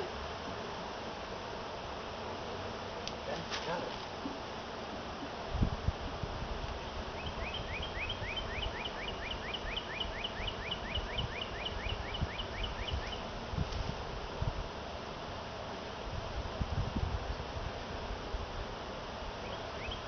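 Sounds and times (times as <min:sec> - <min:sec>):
songbird singing: 0:06.7 - 0:13.4, 0:19.3 - 0:20.0.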